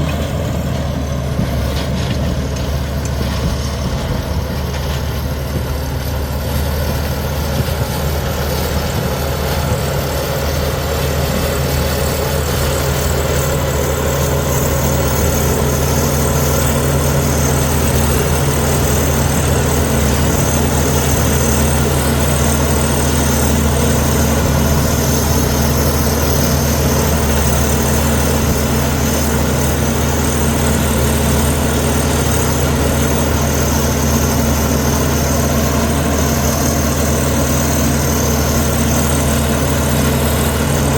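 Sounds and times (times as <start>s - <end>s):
bulldozer diesel engine running: 0.0s - 40.9s.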